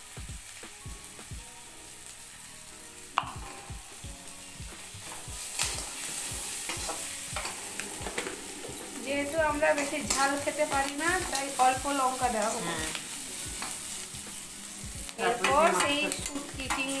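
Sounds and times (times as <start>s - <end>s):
frying sizzle: 0.0s - 17.0s
metal spatula scraping pan: 5.0s - 11.7s.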